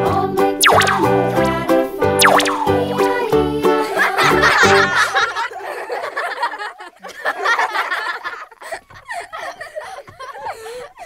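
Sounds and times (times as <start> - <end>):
people laughing and chuckling: 4.0 - 11.0.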